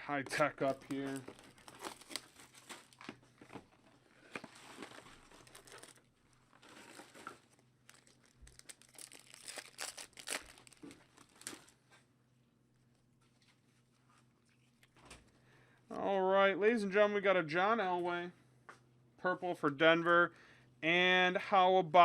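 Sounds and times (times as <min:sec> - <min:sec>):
wrapper tearing and crinkling: 0:00.6 - 0:03.1, 0:04.5 - 0:11.8.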